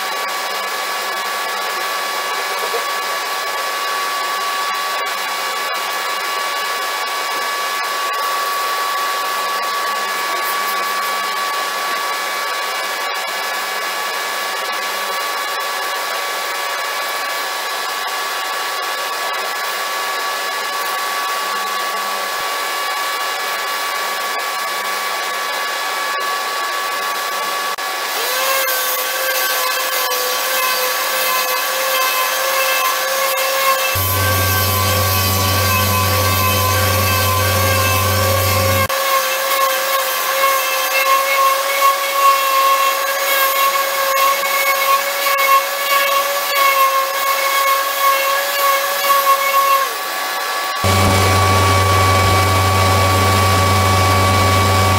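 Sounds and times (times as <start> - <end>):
electric motor whining: 33.9 - 38.9, 50.8 - 54.9
rising tone: 34.0 - 38.9, 50.8 - 54.9.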